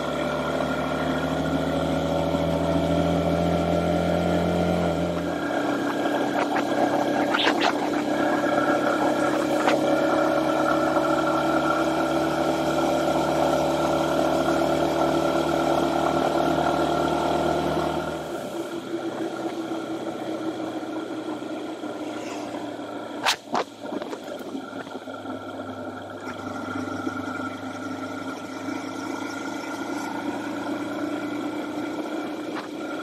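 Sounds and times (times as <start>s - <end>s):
motorcycle engine running: 0.0s - 33.0s
wind and road noise: 3.3s - 12.8s, 17.5s - 26.5s, 27.4s - 33.0s.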